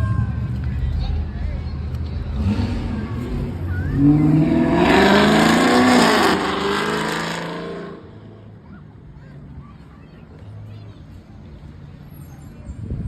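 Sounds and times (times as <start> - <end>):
car engine revving: 1.9 - 8.5.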